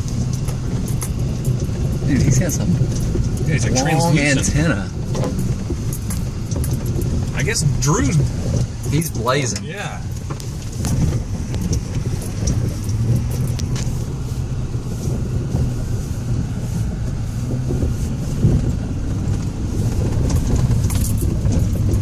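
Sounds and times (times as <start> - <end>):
truck engine and road rumble: 0.0 - 22.0
knocks and rattles in truck cab: 4.2 - 9.4, 10.0 - 22.0.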